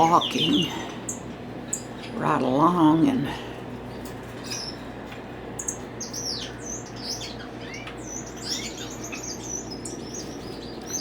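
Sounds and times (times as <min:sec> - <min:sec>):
caged birds chirping: 0:00.0 - 0:11.0
steady low hum: 0:00.0 - 0:11.0.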